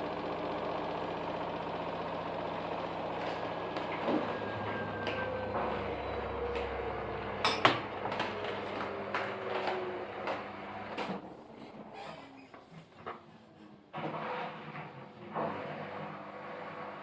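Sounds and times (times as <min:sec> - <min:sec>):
washing machine motor hum and whine: 0:00.0 - 0:11.0.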